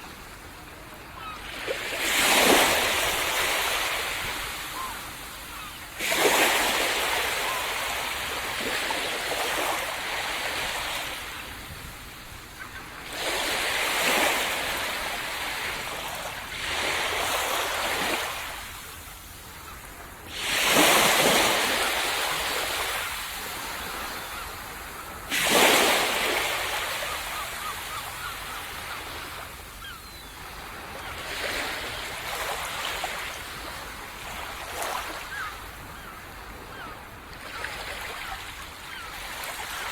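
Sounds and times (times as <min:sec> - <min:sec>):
waves breaking on sand: 0:01.2 - 0:19.1, 0:20.2 - 0:28.0.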